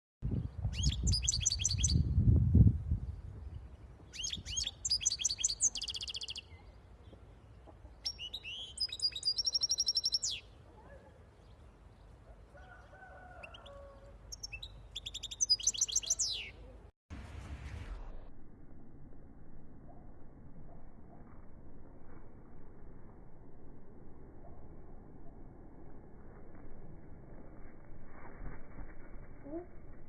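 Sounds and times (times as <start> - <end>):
songbird chirping and trilling: 0.4 - 2.2, 3.1 - 16.9.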